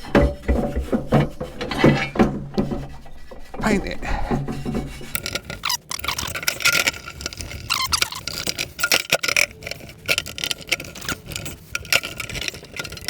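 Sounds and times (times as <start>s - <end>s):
nail brush scrubbing metal: 4.8s - 13.0s.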